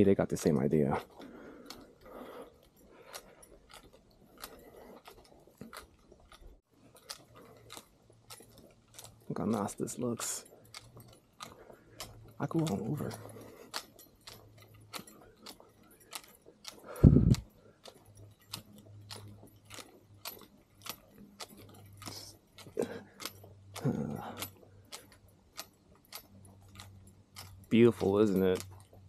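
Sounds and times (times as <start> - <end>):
gear jangling: 0.0 - 29.0.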